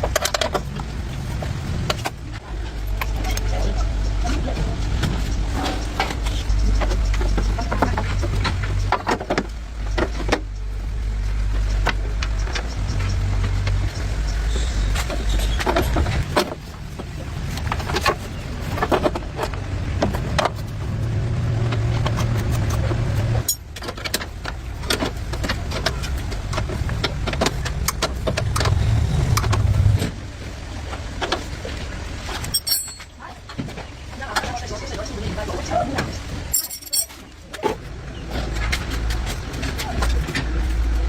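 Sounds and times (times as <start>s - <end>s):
sharp clicks and knocks: 0.0s - 2.2s, 4.9s - 10.8s, 11.5s - 30.2s.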